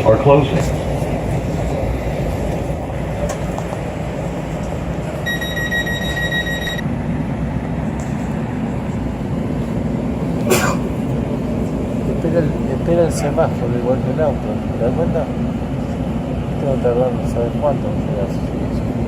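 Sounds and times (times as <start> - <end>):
train running rumble: 0.0 - 19.0
high beep: 5.2 - 6.8.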